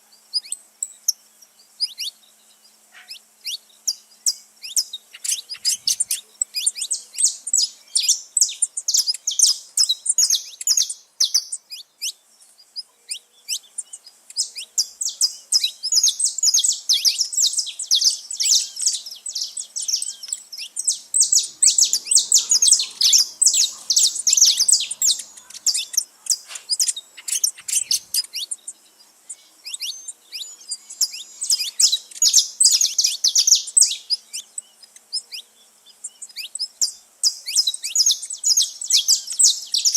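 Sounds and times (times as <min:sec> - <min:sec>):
flock of finches chirping: 0:02.9 - 0:39.9.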